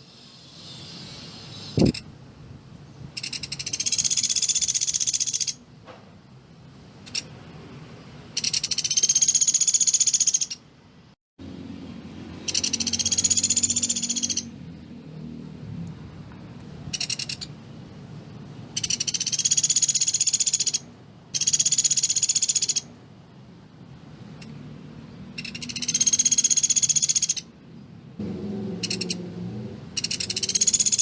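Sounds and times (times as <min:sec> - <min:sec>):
woodpecker rattling trills: 0:03.2 - 0:05.6, 0:08.4 - 0:10.6, 0:12.4 - 0:14.5, 0:16.9 - 0:17.5, 0:18.7 - 0:22.9, 0:25.4 - 0:27.5, 0:28.8 - 0:29.2, 0:30.0 - 0:31.0.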